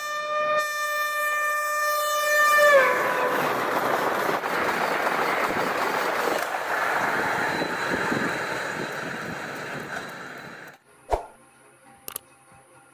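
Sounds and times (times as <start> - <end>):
passenger train passing at speed: 2.2 - 11.3.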